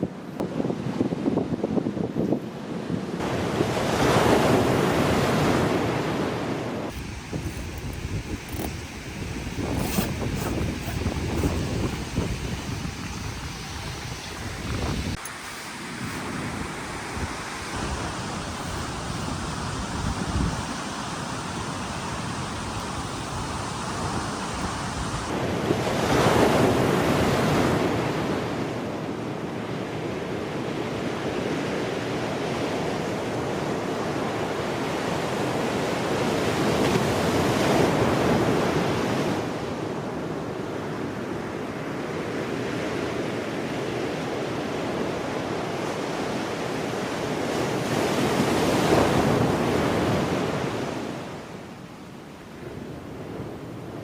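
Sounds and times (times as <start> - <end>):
wind rumbling on microphone: 0.0 - 29.2
wind gusts: 0.0 - 54.0
waves rushing: 2.6 - 54.0.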